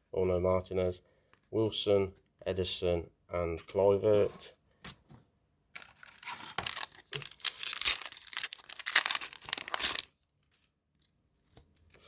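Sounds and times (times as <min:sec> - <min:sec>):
foil packet tearing and crinkling: 0:05.8 - 0:10.2.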